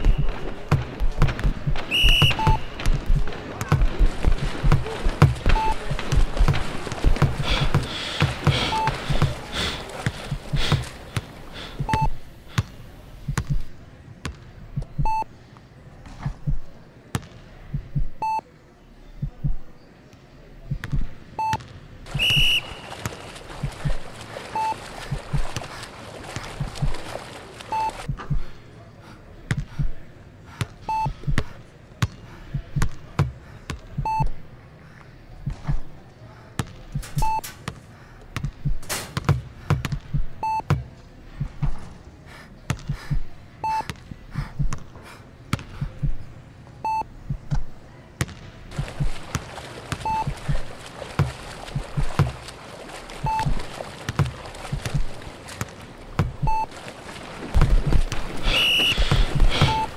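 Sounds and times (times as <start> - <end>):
hazy electronic noise: 0.0 - 14.0, 22.1 - 28.6, 56.2 - 59.9
irregular low thuds: 0.0 - 15.3, 16.1 - 16.8, 17.6 - 18.3, 19.2 - 19.8, 20.6 - 21.4, 22.0 - 28.6, 29.4 - 34.5, 35.3 - 36.0, 38.3 - 42.0, 42.7 - 46.4, 47.0 - 59.9
short clean beep: 2.0 - 2.8, 5.6 - 5.8, 8.7 - 9.2, 11.8 - 12.2, 15.0 - 15.3, 24.6 - 24.8, 30.9 - 31.2, 34.0 - 34.3, 37.2 - 37.5, 40.4 - 40.7, 50.0 - 50.4, 53.2 - 53.5, 56.4 - 56.7, 58.4 - 59.9.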